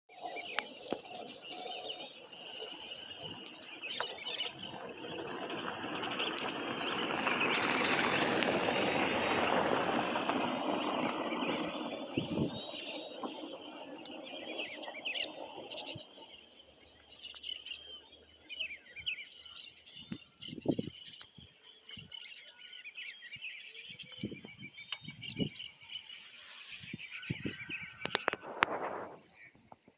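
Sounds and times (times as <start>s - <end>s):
birds chirping and calling: 0.1s - 29.8s
broad rushing noise: 0.6s - 17.0s.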